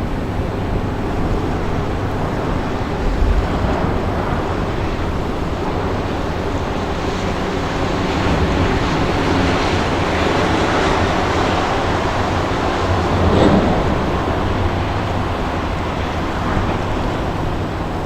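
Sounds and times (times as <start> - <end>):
wind on microphone: 0.0 - 18.0
low rumble: 12.3 - 17.3.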